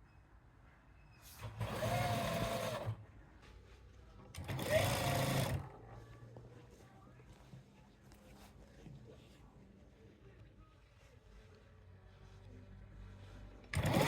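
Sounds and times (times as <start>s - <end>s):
sewing machine stitching: 1.3s - 3.0s, 4.4s - 5.7s, 13.7s - 14.0s.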